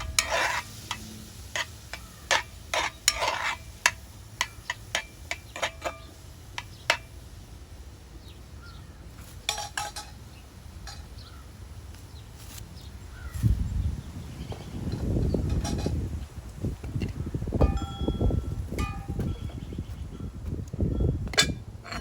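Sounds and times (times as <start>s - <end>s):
metal utensil clinking on pot: 0.0s - 7.1s, 9.5s - 10.2s.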